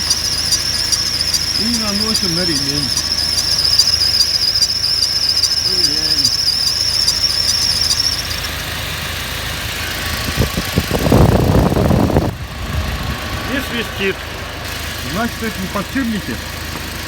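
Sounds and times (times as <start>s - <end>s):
lubricant spray: 0.0s - 8.4s
car engine idling: 0.0s - 17.0s
drive belt squealing: 0.0s - 17.0s.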